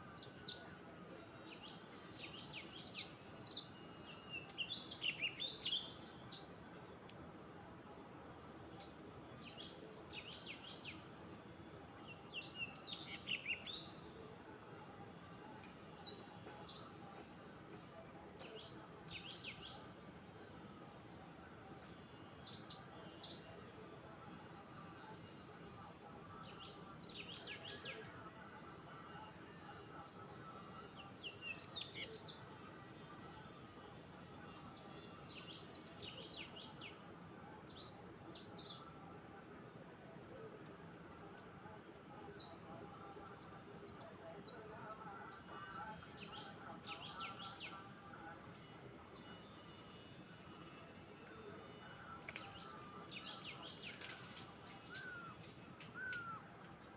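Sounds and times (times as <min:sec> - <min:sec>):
steady background hiss: 0:00.0 - 0:56.9
songbird warbling: 0:43.6 - 0:56.9.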